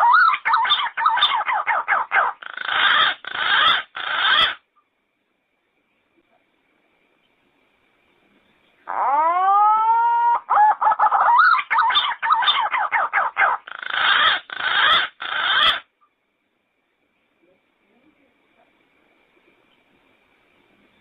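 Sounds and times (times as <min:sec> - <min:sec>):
pigeon singing: 0:00.0 - 0:04.6, 0:08.9 - 0:15.9.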